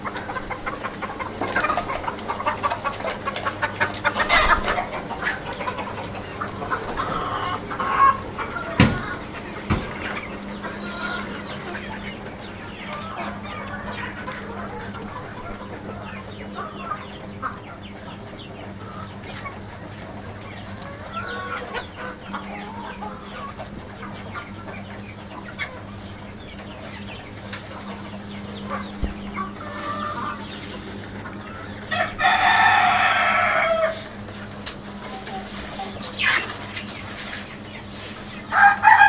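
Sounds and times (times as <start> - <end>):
chickens clucking: 0.0 - 39.0
rooster crowing: 31.9 - 34.1, 38.5 - 39.0.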